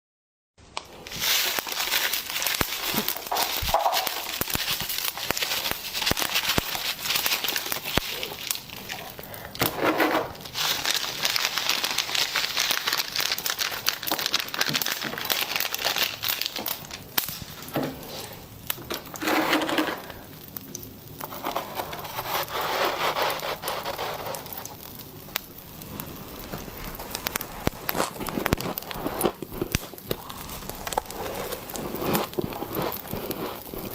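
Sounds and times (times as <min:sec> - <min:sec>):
chewing crunchy popping candy: 0:01.8 - 0:09.8, 0:26.7 - 0:33.9.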